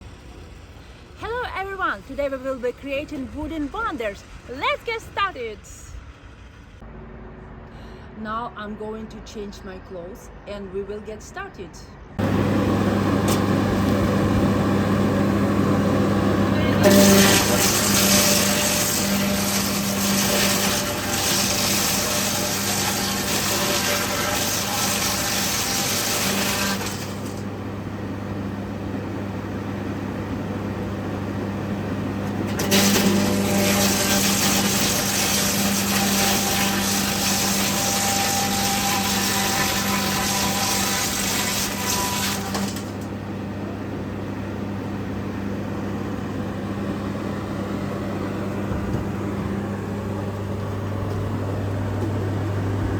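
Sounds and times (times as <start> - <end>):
woodworking machine humming: 12.2 - 52.9
wood cutting hiss: 16.8 - 27.5, 32.6 - 43.0.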